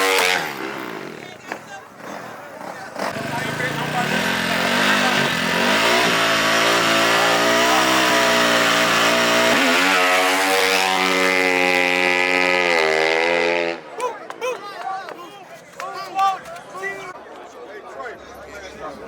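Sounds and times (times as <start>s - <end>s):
racing engine at high revs: 0.0s - 1.3s, 2.0s - 13.8s.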